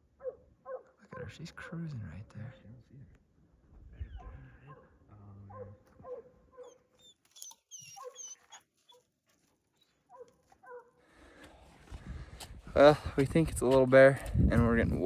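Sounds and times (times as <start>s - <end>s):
faint hounds baying and yelping: 0.2s - 1.3s, 3.9s - 9.1s, 9.7s - 11.0s.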